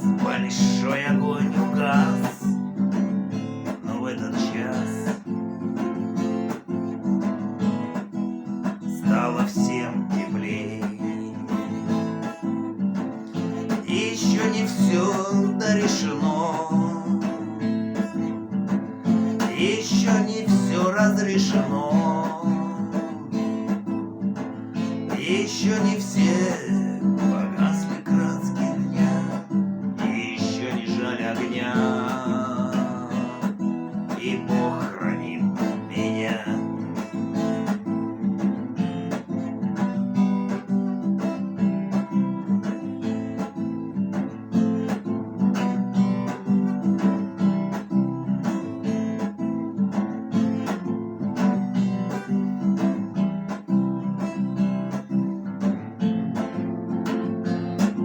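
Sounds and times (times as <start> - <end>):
person singing: 0.0 - 2.7, 3.6 - 5.3, 8.8 - 12.5, 13.2 - 18.4, 19.2 - 24.0, 24.8 - 37.5
acoustic guitar strumming: 0.0 - 58.0.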